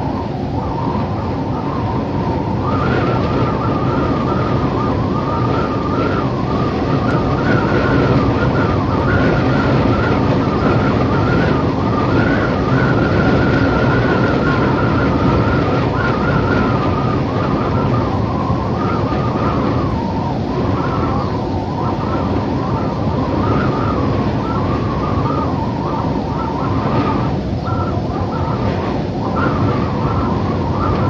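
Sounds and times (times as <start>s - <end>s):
howling wind: 0.0s - 31.0s.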